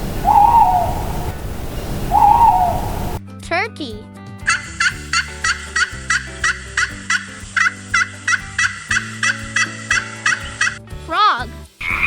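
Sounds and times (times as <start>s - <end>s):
turkey gobbling: 0.0s - 3.2s, 4.5s - 10.8s.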